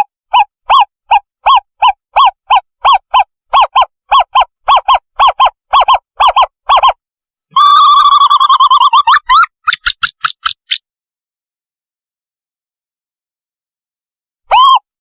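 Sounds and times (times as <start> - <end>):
owlet whistled hoots: 0.3 - 9.5.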